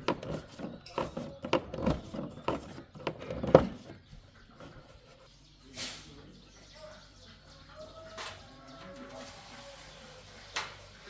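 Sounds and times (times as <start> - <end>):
short hiss: 5.8 - 6.1.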